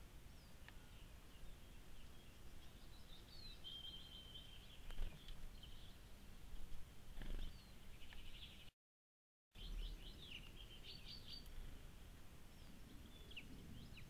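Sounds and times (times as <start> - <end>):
faint bird chirps and song: 0.0 - 8.7, 9.6 - 14.0
outdoor background noise: 0.0 - 8.7, 9.6 - 14.0.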